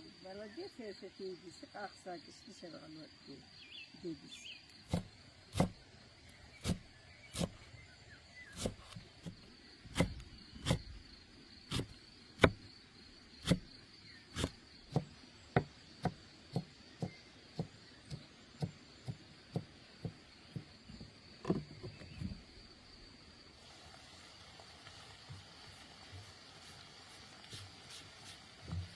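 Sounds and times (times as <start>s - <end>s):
crickets chirring: 0.0s - 28.9s
knife chopping on wooden board: 4.9s - 5.8s, 6.6s - 7.6s, 8.5s - 10.9s, 11.7s - 12.6s, 13.4s - 13.6s, 14.3s - 21.8s.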